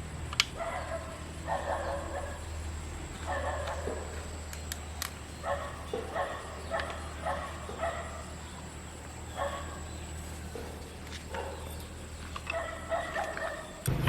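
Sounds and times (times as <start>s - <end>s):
dog barking: 0.6s - 2.5s, 3.2s - 4.4s, 5.4s - 8.5s, 9.3s - 13.8s.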